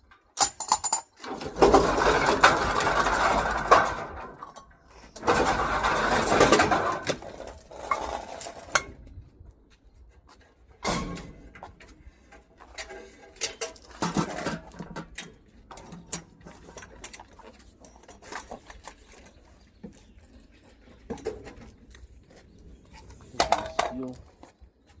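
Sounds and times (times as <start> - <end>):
metal scrap clinking and rattling: 0.0 - 9.0, 12.6 - 19.2.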